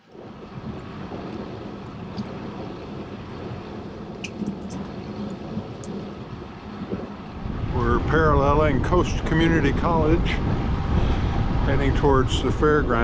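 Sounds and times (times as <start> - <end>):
tyres humming on path: 0.0 - 13.0
wind rush on microphone: 0.0 - 13.0.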